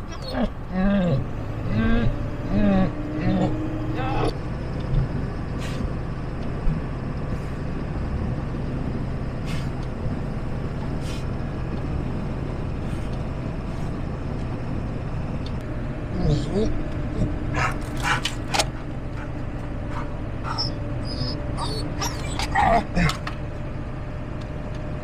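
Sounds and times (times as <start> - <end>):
truck engine and road rumble: 0.0 - 25.0.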